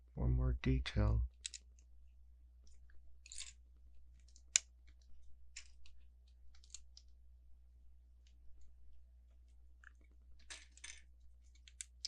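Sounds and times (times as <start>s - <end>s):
plastic bricks clicking together: 9.8s - 12.0s.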